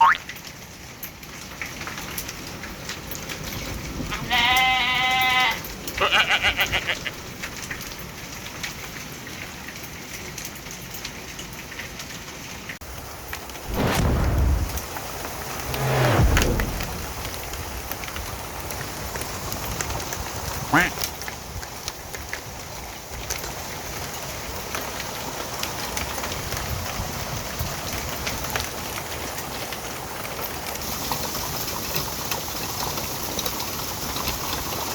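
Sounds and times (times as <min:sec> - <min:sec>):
hail hitting ground and roof: 0:00.2 - 0:13.6, 0:17.1 - 0:34.9
heavy rain hiss: 0:12.9 - 0:34.9.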